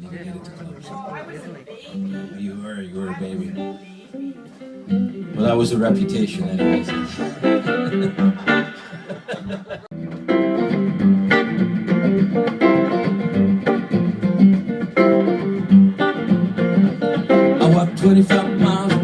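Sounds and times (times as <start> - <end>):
electric guitar picking: 1.9 - 19.0
rock band playing: 3.0 - 19.0.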